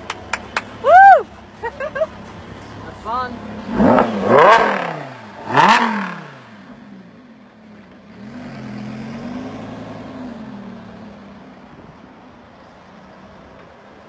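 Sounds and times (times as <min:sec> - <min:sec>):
car pulling away: 0:00.0 - 0:14.0
sports car engine revving: 0:02.2 - 0:11.6.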